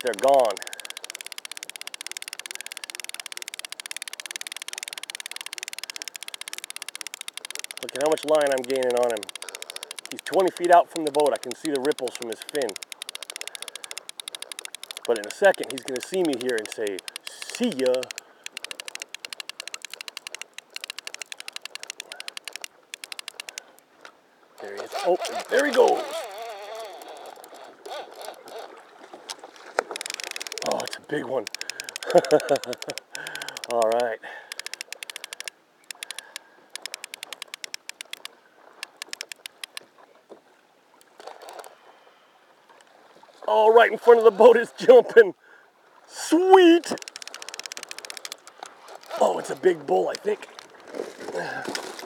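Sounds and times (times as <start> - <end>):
fishing reel clicking rapidly: 0.0 - 23.8, 24.6 - 28.7, 29.8 - 39.8, 46.4 - 50.6
faint water: 0.0 - 52.0.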